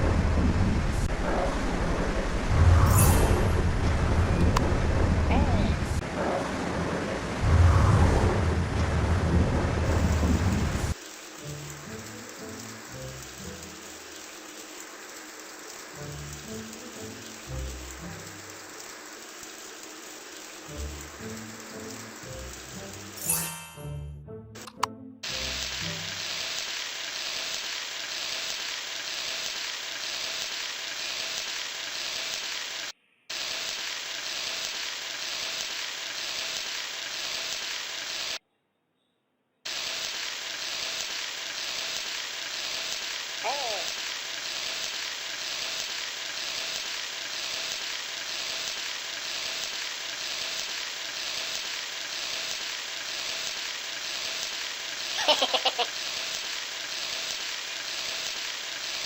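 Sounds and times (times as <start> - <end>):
steady hissing noise: 9.8 - 23.4, 24.6 - 38.4, 39.7 - 59.0.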